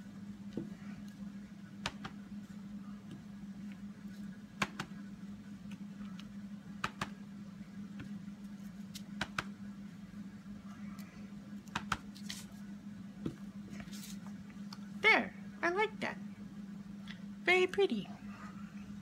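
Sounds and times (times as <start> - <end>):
steady low hum: 0.0 - 19.0
rubber stamp tapping on card: 1.8 - 2.2, 9.2 - 9.5.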